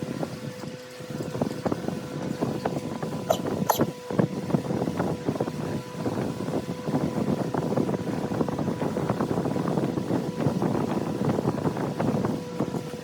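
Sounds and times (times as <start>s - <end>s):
tool scraping spinning wood: 3.2s - 4.0s.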